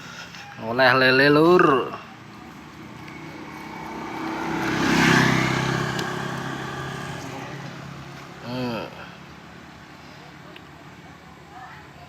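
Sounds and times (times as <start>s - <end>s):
motor vehicle driving past: 1.9s - 10.4s.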